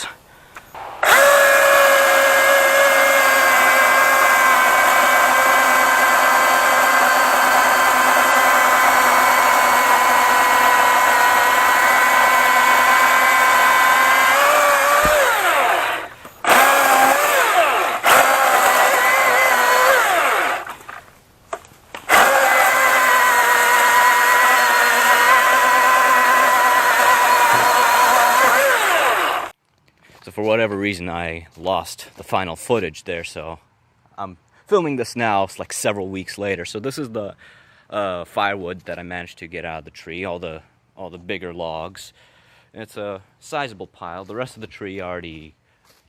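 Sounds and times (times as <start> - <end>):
electric chainsaw cutting wood: 0.8 - 21.1, 22.0 - 29.6.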